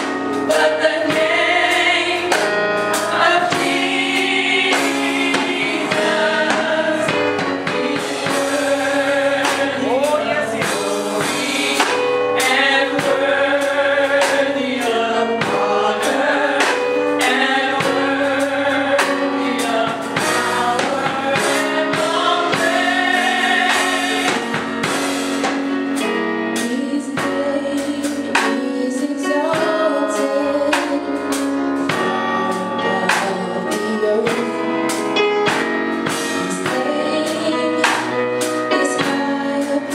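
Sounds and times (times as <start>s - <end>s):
gospel choir singing: 0.0s - 39.9s
keyboard and drum kit band: 0.0s - 39.9s.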